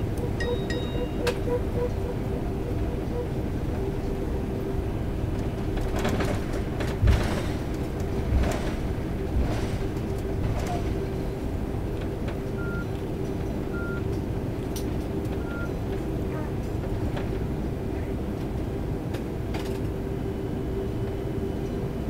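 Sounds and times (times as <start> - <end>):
aircraft cabin rumble: 0.0 - 22.0
short high beeps: 0.4 - 1.3.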